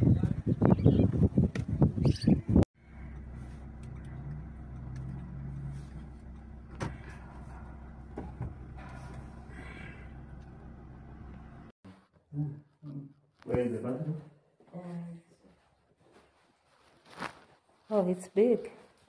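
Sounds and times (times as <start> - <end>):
car engine idling: 2.8 - 11.7.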